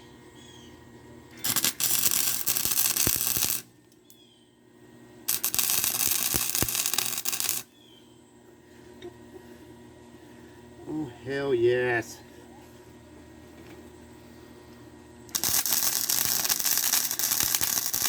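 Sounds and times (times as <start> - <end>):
faint bird chirps: 0.0 - 0.8, 4.0 - 4.6, 7.7 - 8.3
arc welder crackling: 1.3 - 4.2, 5.2 - 7.8, 15.3 - 18.0.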